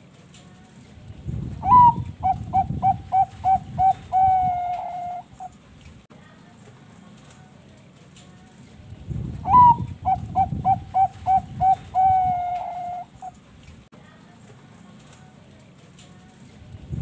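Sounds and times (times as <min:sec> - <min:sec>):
dove cooing: 0:01.6 - 0:05.6, 0:09.5 - 0:13.4.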